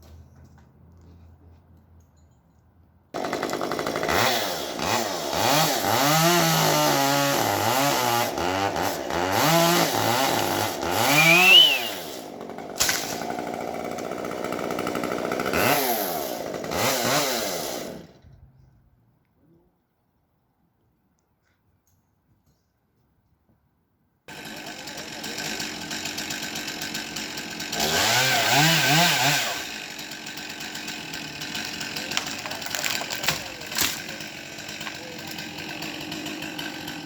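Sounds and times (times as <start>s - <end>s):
chainsaw engine revving: 3.2s - 18.2s, 24.3s - 37.0s.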